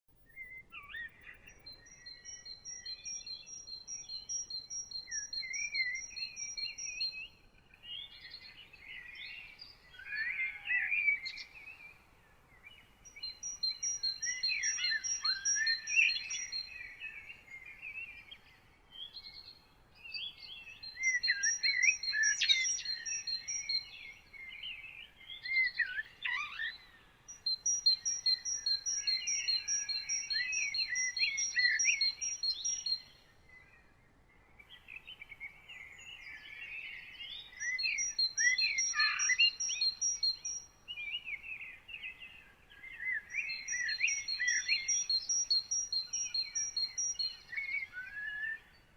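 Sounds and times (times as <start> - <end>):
birds warbling and chirping: 13.2 - 18.6, 20.4 - 33.1, 34.8 - 48.8.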